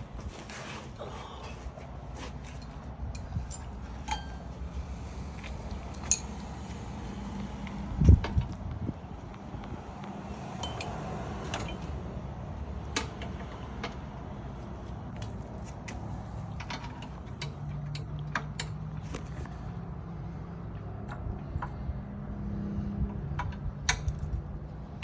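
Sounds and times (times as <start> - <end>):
steady low rumble: 0.0 - 13.0
hand tools clicking and knocking: 1.2 - 4.7.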